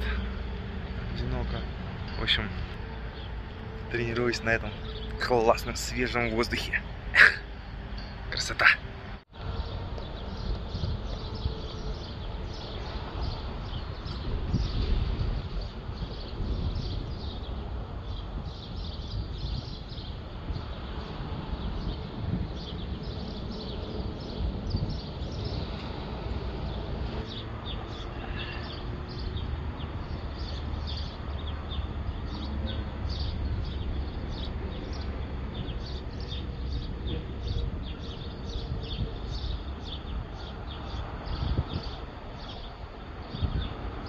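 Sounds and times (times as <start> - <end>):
birds chirping: 0.0 - 44.0
wind rumble on microphone: 8.8 - 44.0.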